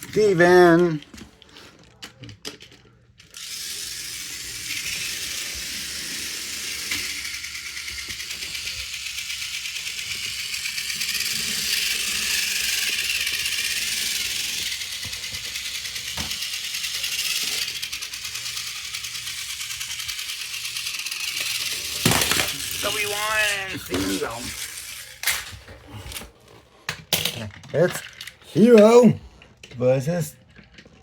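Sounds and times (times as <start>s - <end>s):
toy train motor whirring: 0.0s - 31.0s.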